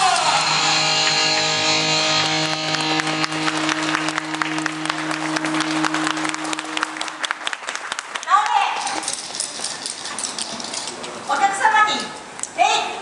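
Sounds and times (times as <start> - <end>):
dance music held chord: 0.0 - 7.4
crowd applause: 0.0 - 8.6.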